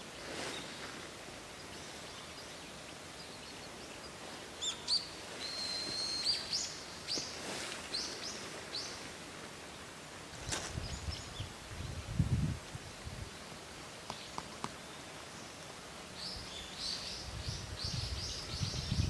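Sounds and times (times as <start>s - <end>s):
faint outdoor background noise: 0.0s - 19.0s
bird singing: 1.6s - 7.3s, 16.2s - 19.0s.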